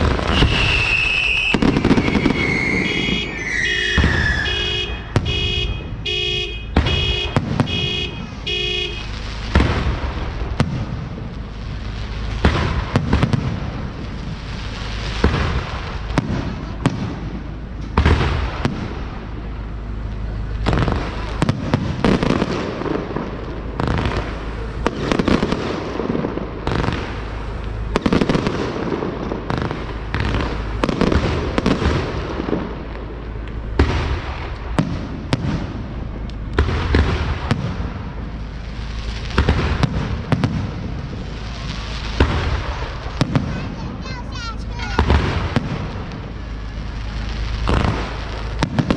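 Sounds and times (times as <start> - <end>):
fireworks bangs: 0.0 - 48.9.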